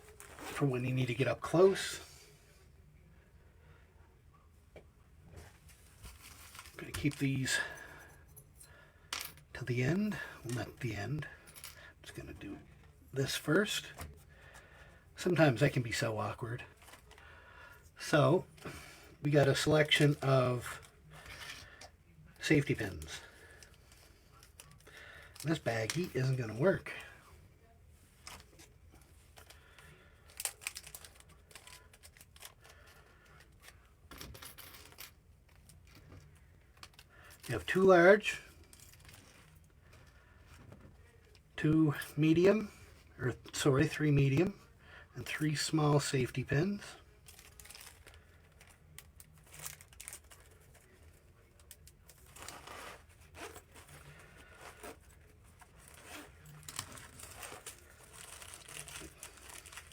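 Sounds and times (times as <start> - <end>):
plastic bag rustle: 5.6 - 7.7, 28.2 - 33.5, 47.1 - 59.9.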